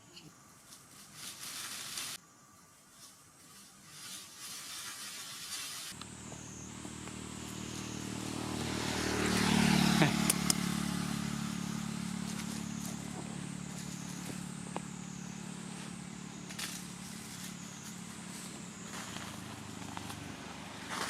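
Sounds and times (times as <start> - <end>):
vehicle engine passing by: 6.0 - 21.0.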